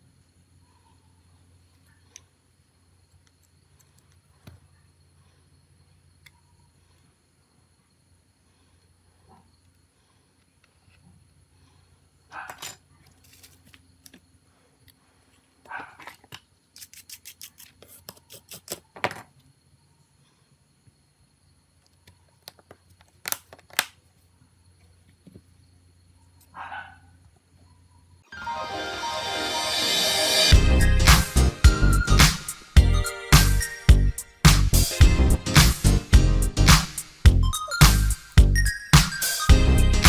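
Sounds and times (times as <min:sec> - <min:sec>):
louder snaps: 0:36.7 - 0:37.1.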